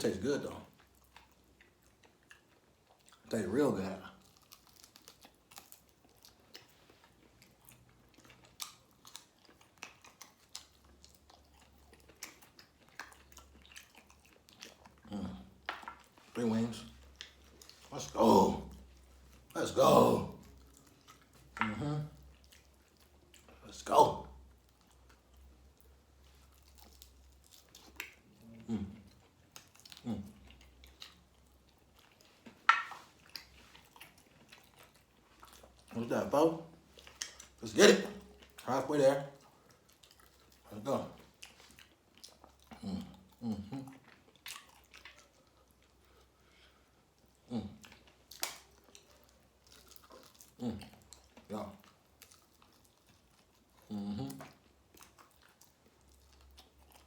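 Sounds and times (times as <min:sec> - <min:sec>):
chewing: 0:00.2 - 0:57.0
wet mouth clicks: 0:47.4 - 0:51.9.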